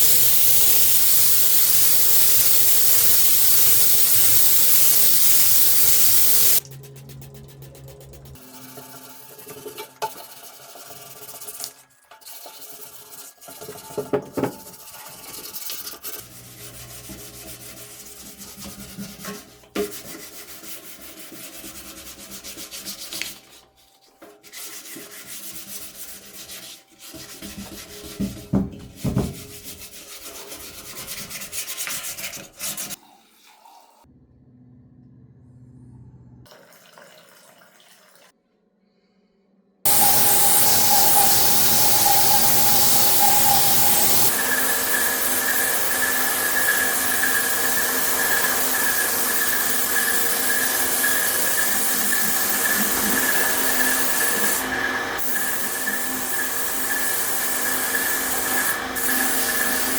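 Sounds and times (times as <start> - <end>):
loud steady hiss: 0.0 - 6.6, 39.9 - 59.9
hand sanding scraping strokes: 14.8 - 33.0, 39.9 - 59.9.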